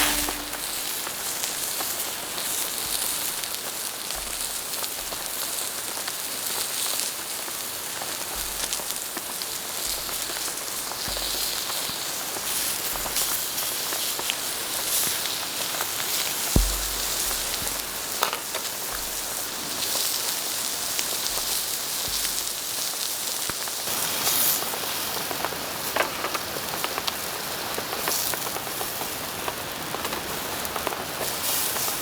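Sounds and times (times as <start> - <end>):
raindrops ticking on surfaces: 16.6 - 18.3.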